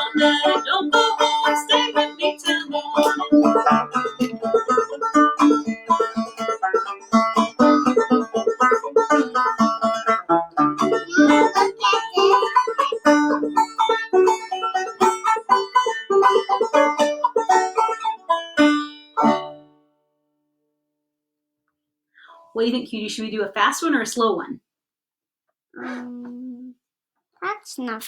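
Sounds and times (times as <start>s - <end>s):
banjo plucked notes: 0.0s - 19.8s.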